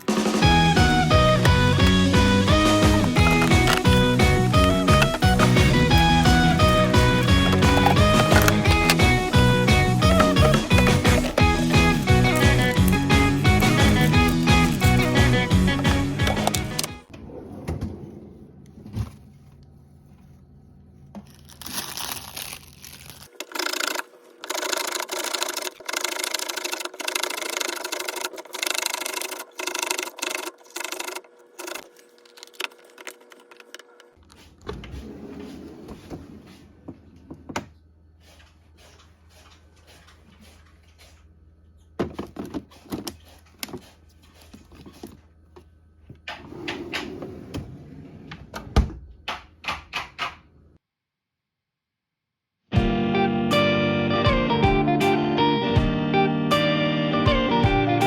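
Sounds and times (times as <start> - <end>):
objects clattering and knocking: 0.0 - 19.4, 42.0 - 45.3
objects scraping: 0.0 - 33.7.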